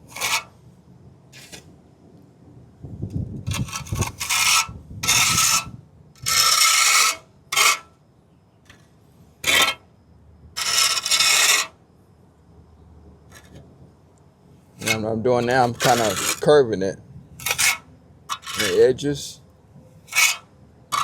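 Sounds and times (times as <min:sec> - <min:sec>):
trowel scraping cement: 0:00.0 - 0:00.5, 0:01.4 - 0:01.7, 0:03.5 - 0:07.9, 0:09.4 - 0:09.8, 0:10.6 - 0:11.8, 0:14.8 - 0:16.5, 0:17.4 - 0:19.2, 0:20.1 - 0:21.0.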